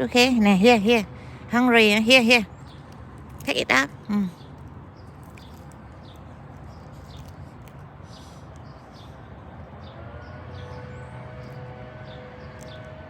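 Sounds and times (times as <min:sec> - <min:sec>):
birds chirping: 0:00.0 - 0:13.0
distant siren: 0:09.8 - 0:13.0.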